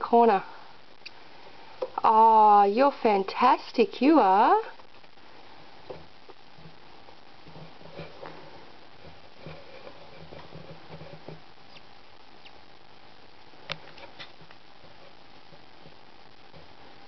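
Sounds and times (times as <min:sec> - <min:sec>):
bird scratching and rustling: 0:07.4 - 0:12.6.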